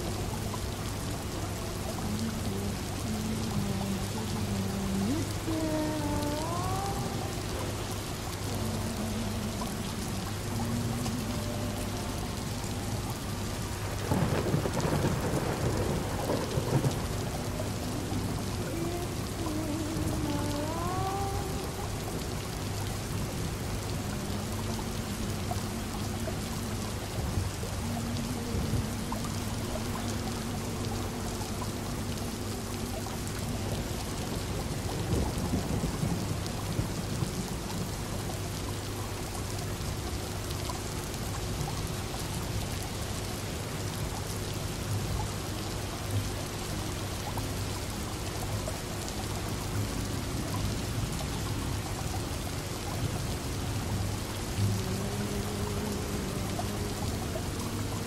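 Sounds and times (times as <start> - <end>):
low hum: 0.0 - 37.8
steady rain: 0.0 - 58.0
distant thunder rolling: 13.8 - 18.5.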